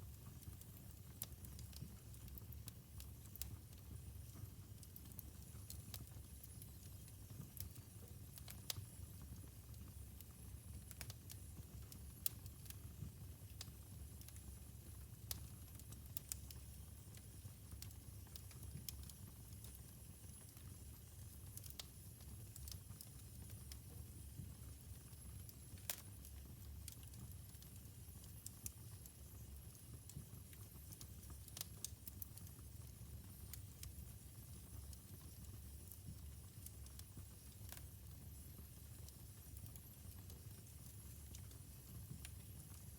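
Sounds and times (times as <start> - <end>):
low rumble of burning logs: 0.0 - 42.9
wood fire crackling: 0.0 - 42.9.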